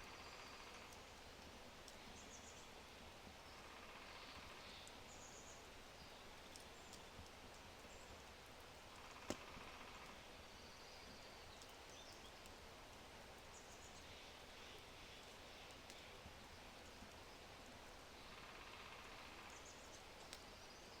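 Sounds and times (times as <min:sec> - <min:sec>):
fire crackling: 0:00.0 - 0:21.0
steady hiss: 0:00.0 - 0:21.0
faint bird chirps: 0:03.4 - 0:08.2, 0:13.4 - 0:21.0.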